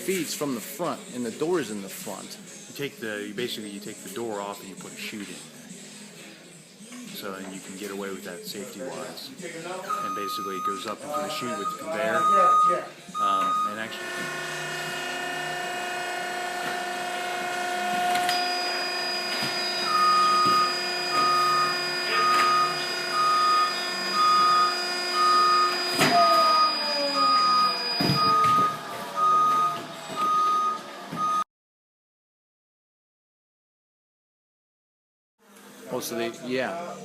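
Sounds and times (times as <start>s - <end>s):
electronic warning beeper: 9.9s - 14.0s, 18.3s - 31.4s
industrial machinery humming: 13.1s - 31.4s.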